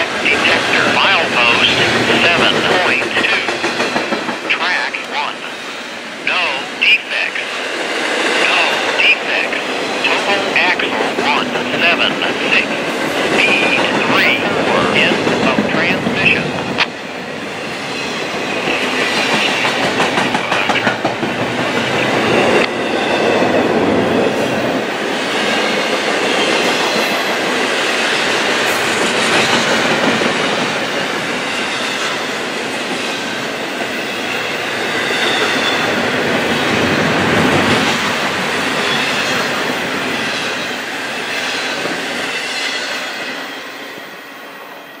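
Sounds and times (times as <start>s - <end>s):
train wheels clacking over rail joints: 1.8s - 4.5s.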